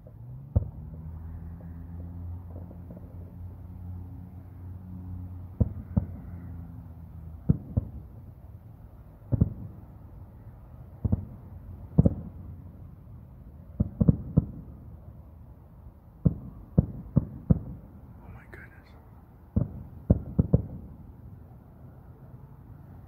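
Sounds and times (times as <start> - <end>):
distant fireworks bangs: 0.0 - 3.6, 5.4 - 8.5, 9.1 - 12.9, 13.6 - 15.0, 16.2 - 18.7, 19.5 - 21.4.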